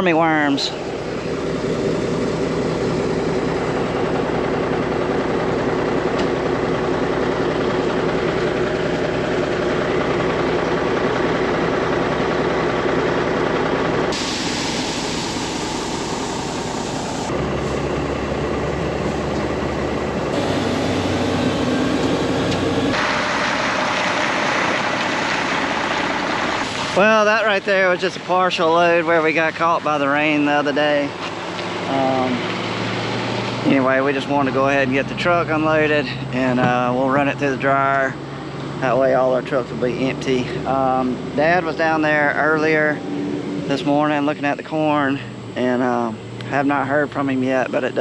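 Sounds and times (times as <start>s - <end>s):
machinery humming: 0.0s - 48.0s.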